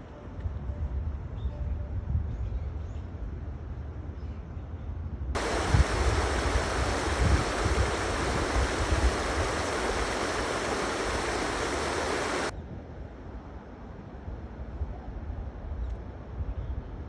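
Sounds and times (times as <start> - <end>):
stream water rushing: 5.4 - 12.5.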